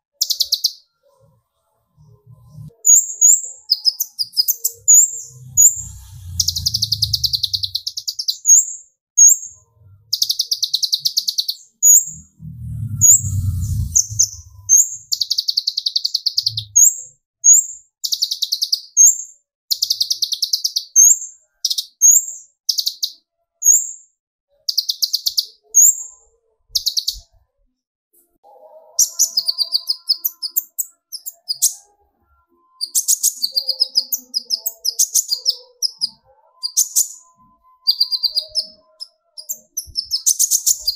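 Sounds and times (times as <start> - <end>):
bird singing buzzy trills: 2.0 - 17.0, 32.7 - 40.9
bird whistled notes: 2.9 - 9.4, 10.2 - 17.0, 32.8 - 40.9
low rumble: 4.7 - 7.8, 12.0 - 15.1.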